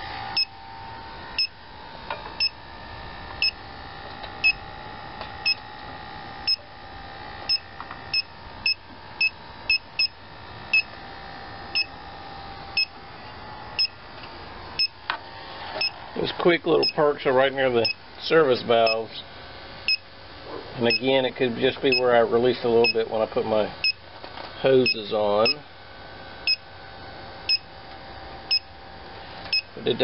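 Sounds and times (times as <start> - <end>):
leak detector beeping: 0.0 - 0.6, 1.3 - 1.6, 2.3 - 2.7, 3.3 - 13.0, 13.7 - 14.0, 14.8 - 15.0, 15.8 - 16.0, 16.8 - 17.1, 17.8 - 18.0, 18.8 - 19.1, 19.8 - 20.1, 20.8 - 21.2, 21.9 - 22.2, 22.8 - 23.0, 23.8 - 24.0, 24.8 - 25.6, 26.4 - 26.7, 27.4 - 27.7, 28.5 - 28.7, 29.4 - 29.8
steady hum: 0.0 - 30.0.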